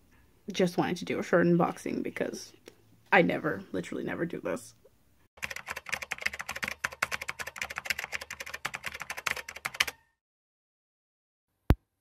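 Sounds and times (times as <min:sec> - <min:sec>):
rapid keyboard typing: 0:05.4 - 0:10.0.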